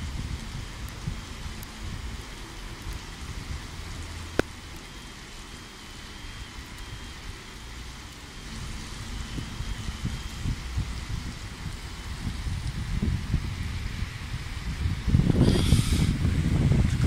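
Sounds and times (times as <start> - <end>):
heavy rain on wet ground: 0.0 - 17.0
low rumble: 7.9 - 17.0.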